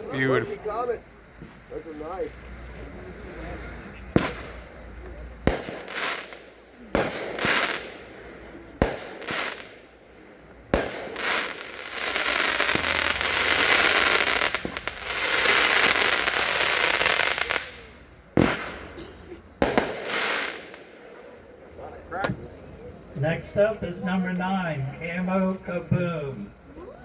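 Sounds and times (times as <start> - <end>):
fireworks bangs: 0.0 - 22.6
continuous rush of fireworks: 0.0 - 27.0.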